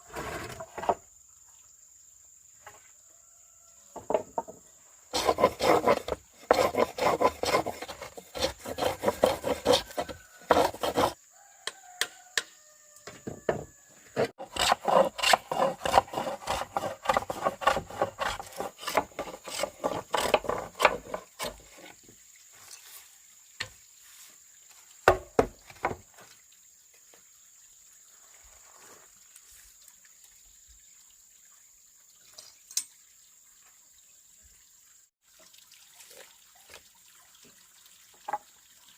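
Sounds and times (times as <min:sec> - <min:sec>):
hand saw cutting: 0:05.1 - 0:11.2, 0:14.2 - 0:21.9.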